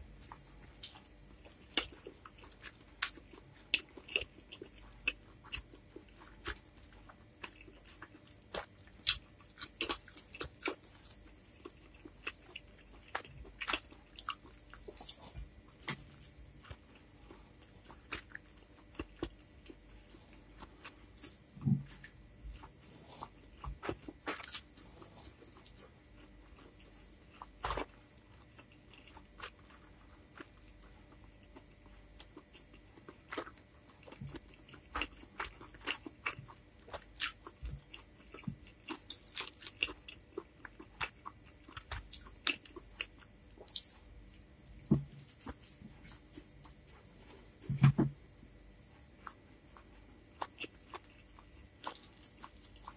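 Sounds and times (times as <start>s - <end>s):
close chewing mouth sounds: 0.0s - 52.9s.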